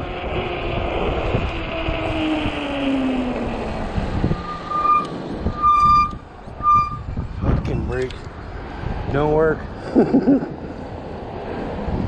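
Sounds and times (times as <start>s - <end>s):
low falling whine: 0.0s - 8.5s
bike brakes squealing: 4.3s - 7.3s.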